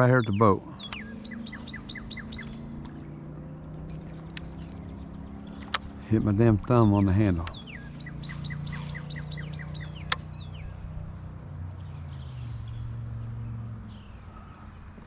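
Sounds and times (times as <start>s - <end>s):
songbird chirping and whistling: 0.0s - 2.8s, 7.5s - 10.7s.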